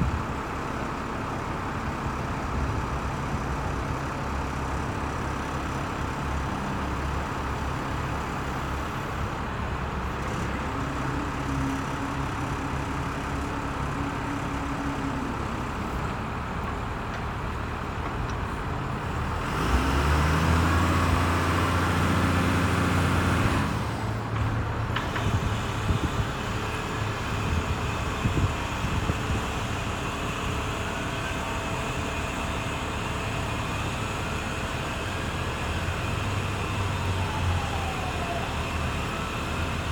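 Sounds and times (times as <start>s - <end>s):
truck crane engine running: 0.0s - 39.9s.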